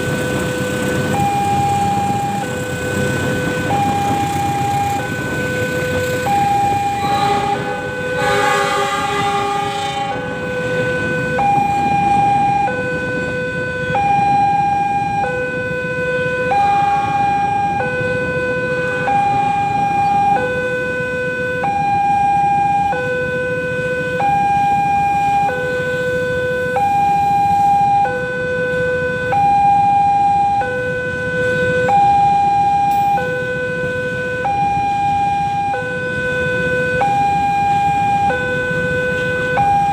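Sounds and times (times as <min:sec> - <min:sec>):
level crossing two-tone alarm: 0:00.1 - 0:39.9
horn-like sound: 0:06.8 - 0:11.4.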